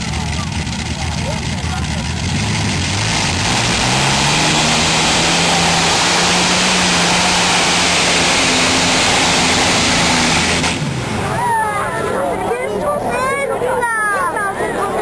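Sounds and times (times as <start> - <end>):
tractor engine at high revs: 0.0 - 11.5.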